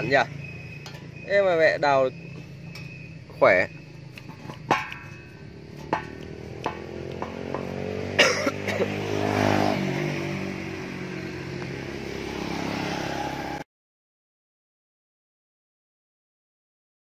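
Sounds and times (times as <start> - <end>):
engine running steadily: 2.4 - 9.8
sharp clicks: 4.0 - 5.2.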